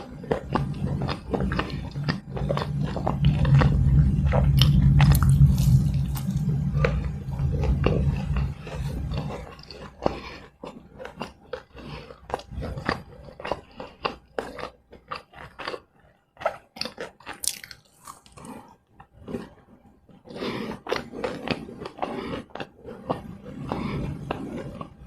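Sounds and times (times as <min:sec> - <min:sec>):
wet mouth sounds: 0:00.0 - 0:15.8, 0:16.4 - 0:19.5
crunchy snack chewing: 0:00.0 - 0:19.6, 0:20.3 - 0:25.0.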